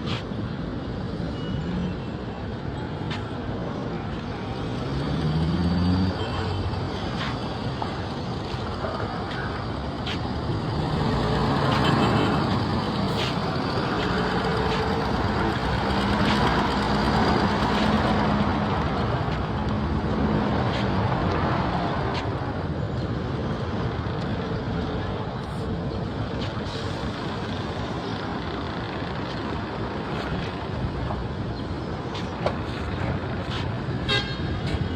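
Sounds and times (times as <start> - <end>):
vehicles passing: 0.0 - 34.9
heavy engine humming: 5.9 - 21.3.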